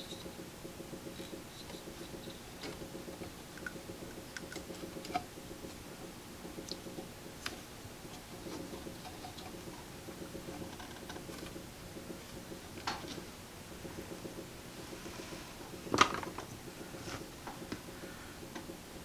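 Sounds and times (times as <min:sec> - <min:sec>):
clicks and scratching on wires: 0:00.0 - 0:05.8, 0:06.4 - 0:15.0
steady low hum: 0:00.0 - 0:19.0.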